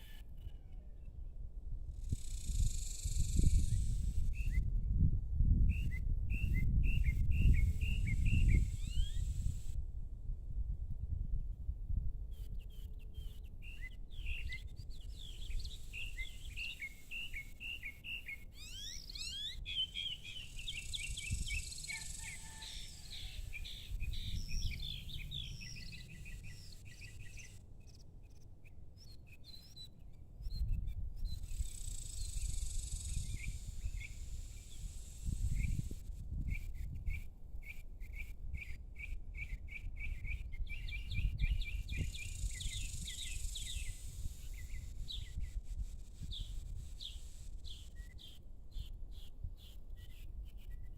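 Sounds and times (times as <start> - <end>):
small birds chirping: 12.4 - 50.9.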